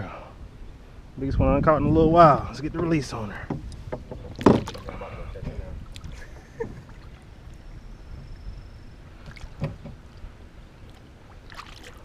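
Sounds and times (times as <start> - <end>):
kayak handling rumble: 2.8 - 12.0
thuds in kayak: 3.5 - 5.0, 9.3 - 10.0.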